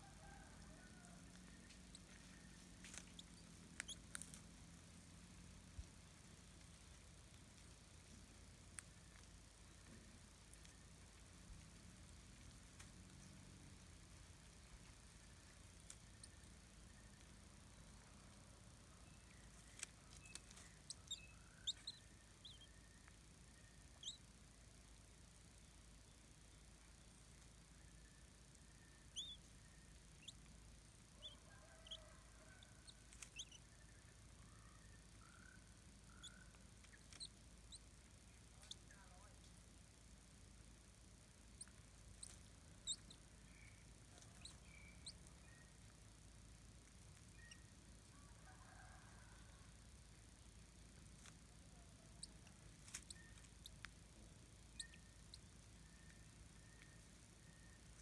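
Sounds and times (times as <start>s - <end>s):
low background hiss: 0.0s - 58.0s
low steady hum: 0.0s - 58.0s
faint sharp clicks: 8.6s - 10.8s, 52.4s - 54.0s
high-pitched bird chirps: 24.0s - 24.2s, 42.2s - 45.7s, 47.3s - 47.7s, 54.8s - 55.4s.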